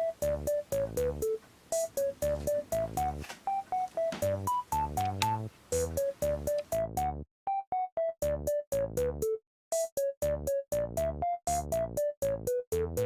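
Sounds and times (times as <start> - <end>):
light bass beat: 0.0 - 7.2
bouncy synthesizer tune: 0.0 - 13.0.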